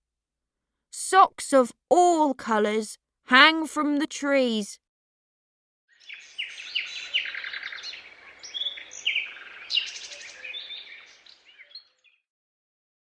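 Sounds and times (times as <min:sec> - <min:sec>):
songbirds chirping and trilling: 0:05.9 - 0:12.2.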